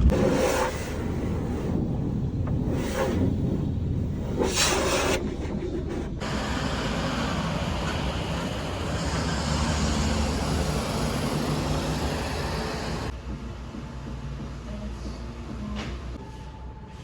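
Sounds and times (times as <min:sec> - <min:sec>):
vehicle running rumble and hiss: 0:06.2 - 0:15.7.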